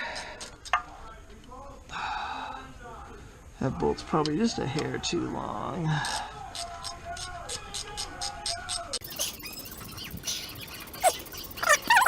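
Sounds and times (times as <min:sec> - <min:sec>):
scattered clicks and squeaks: 0:09.0 - 0:12.0.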